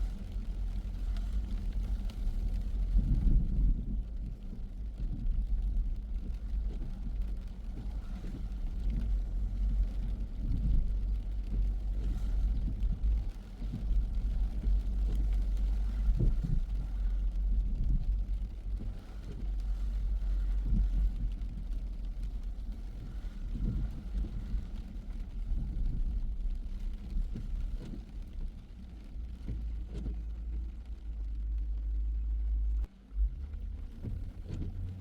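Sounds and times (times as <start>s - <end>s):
car engine and road noise: 0.0s - 35.0s
thumps from road bumps: 29.4s - 30.3s, 33.9s - 35.0s.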